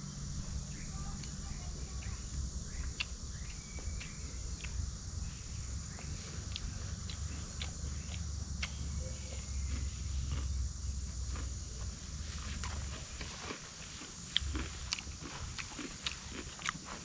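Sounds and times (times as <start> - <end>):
faint chirps: 0.0 - 12.6
insects chirring: 0.0 - 17.0.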